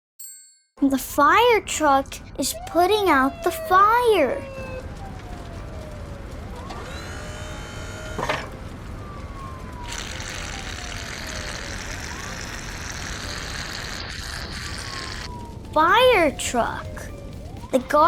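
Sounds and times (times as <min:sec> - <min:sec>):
fire engine siren wailing: 0:01.7 - 0:18.0
spraying water hiss: 0:09.9 - 0:15.3.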